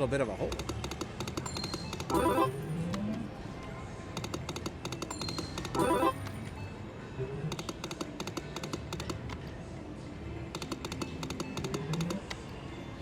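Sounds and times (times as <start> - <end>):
casino background murmur: 0.0 - 13.0
slot machine rapid clicking: 0.5 - 3.3, 4.2 - 6.4, 7.6 - 9.4, 10.6 - 12.4
faint machine tones: 1.4 - 7.7.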